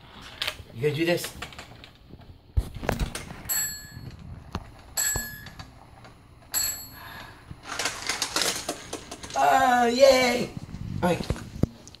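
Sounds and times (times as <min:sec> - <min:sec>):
small toy bell ringing: 0:06.5 - 0:07.0
plastic toy parts rattling: 0:07.6 - 0:09.7.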